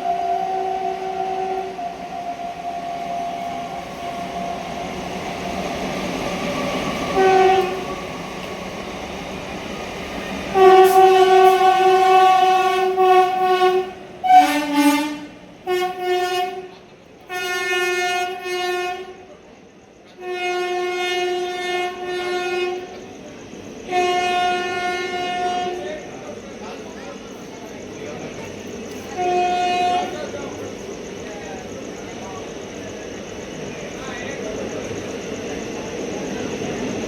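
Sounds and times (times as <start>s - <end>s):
train horn: 0.0s - 4.7s, 7.0s - 8.0s, 10.5s - 19.3s, 20.1s - 23.0s, 23.8s - 26.0s, 29.1s - 30.3s
running trains rumbling: 0.0s - 37.0s.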